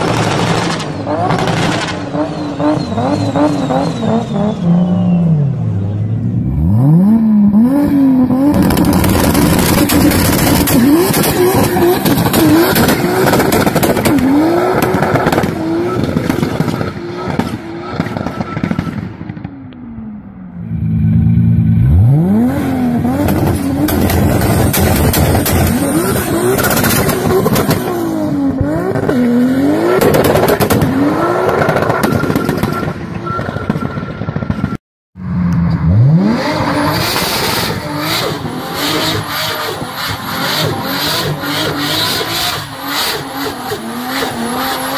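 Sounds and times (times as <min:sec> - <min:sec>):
exhaust popping and crackling: 0:00.0 - 0:04.2, 0:08.2 - 0:19.9, 0:22.4 - 0:34.8
car engine revving hard: 0:06.6 - 0:18.8, 0:21.8 - 0:32.6, 0:35.8 - 0:44.9.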